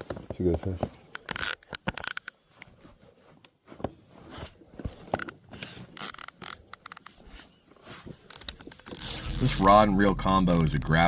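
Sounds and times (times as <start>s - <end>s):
fishing tackle clicks and scrapes: 1.1s - 2.8s, 5.0s - 10.8s.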